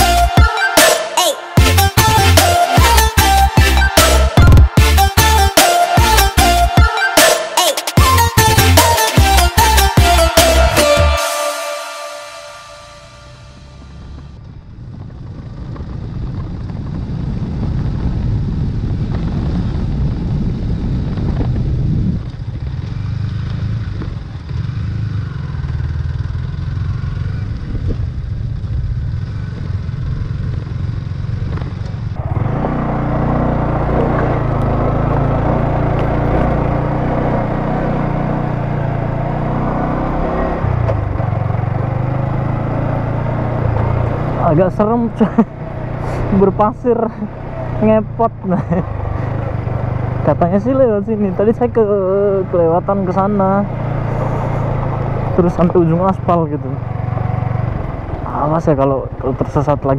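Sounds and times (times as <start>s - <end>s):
motorcycle engine running: 13.2s - 59.9s.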